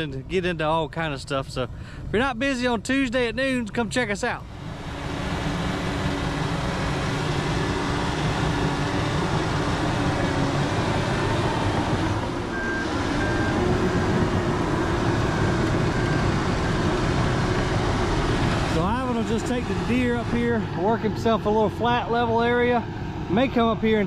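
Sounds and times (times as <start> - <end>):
diesel earthmoving equipment running: 1.6 - 24.0
short high beeps: 12.5 - 14.2.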